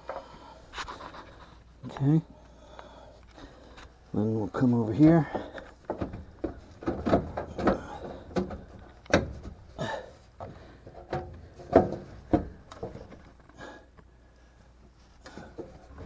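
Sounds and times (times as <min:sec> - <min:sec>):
knocks and clunks of panel handling: 0:05.3 - 0:09.7, 0:10.4 - 0:13.2.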